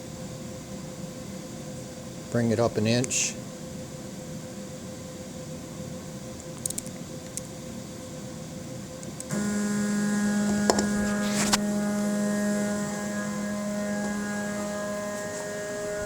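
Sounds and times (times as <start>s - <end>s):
faint hum: 0.0s - 16.0s
motor whine: 9.3s - 16.0s.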